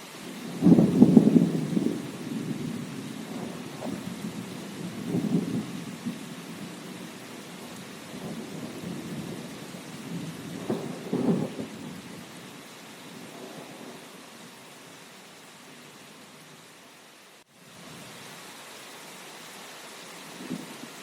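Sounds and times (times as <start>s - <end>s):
steady rain falling: 0.0s - 21.0s
rolling thunder: 0.5s - 12.3s.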